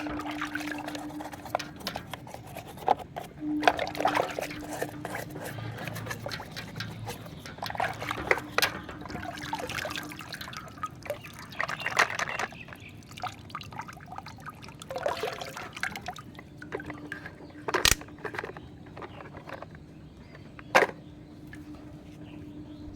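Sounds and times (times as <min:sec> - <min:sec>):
water splashing and trickling: 0:00.0 - 0:21.8
small clicks: 0:17.1 - 0:19.8.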